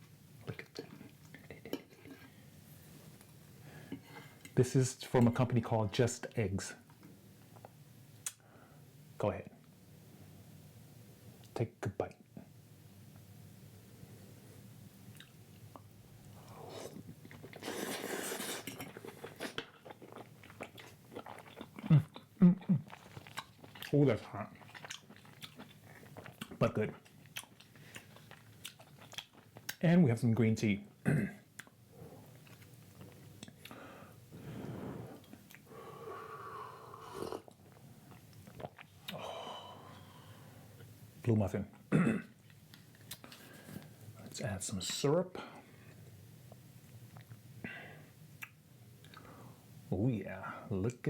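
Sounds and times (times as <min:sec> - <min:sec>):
person chewing food: 0:15.1 - 0:29.8, 0:31.6 - 0:33.8, 0:37.1 - 0:39.2, 0:48.4 - 0:49.3
person sipping tea: 0:16.3 - 0:22.1, 0:32.0 - 0:40.4
breathing through the nose: 0:33.7 - 0:37.1.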